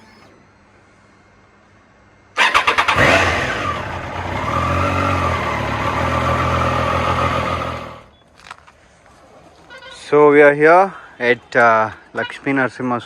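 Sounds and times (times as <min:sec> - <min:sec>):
motorcycle engine starting and running: 0:02.4 - 0:08.1.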